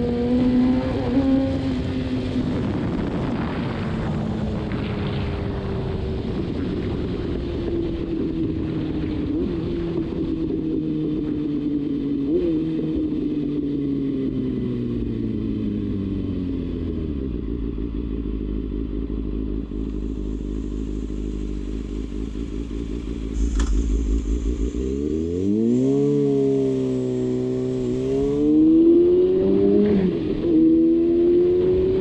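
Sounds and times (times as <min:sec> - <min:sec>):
motorcycle engine revving: 0:00.0 - 0:32.0
sharp click: 0:23.4 - 0:24.6.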